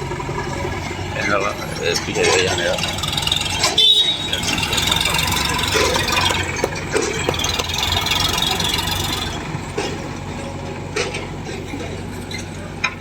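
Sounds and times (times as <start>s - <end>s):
sharp metallic knocks: 0.0s - 9.6s
diesel engine running: 0.0s - 13.0s.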